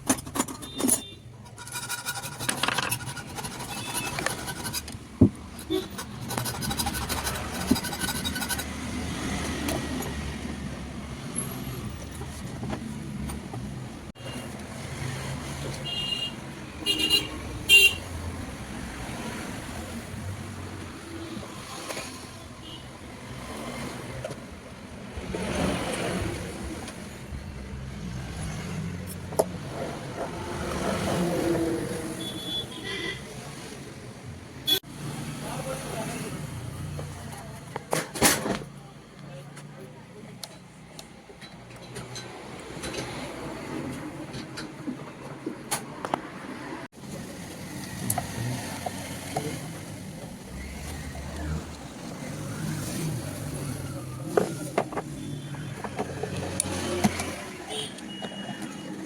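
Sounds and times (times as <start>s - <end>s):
clicks and scrapes of hand work: 0.0s - 8.7s
road traffic passing: 0.0s - 59.0s
vehicle horn blasts: 15.8s - 18.0s, 32.2s - 33.2s.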